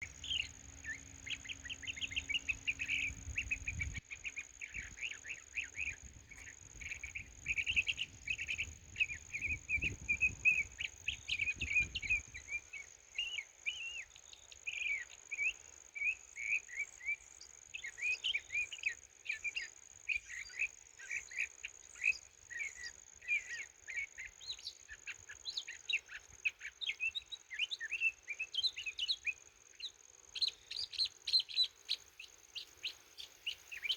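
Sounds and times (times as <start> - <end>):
birds chirping: 0.0 - 15.6, 20.2 - 33.9.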